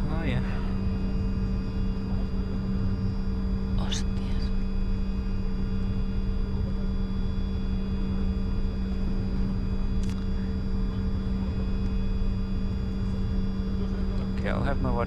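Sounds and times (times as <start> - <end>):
jet engines idling: 7.7 - 15.0.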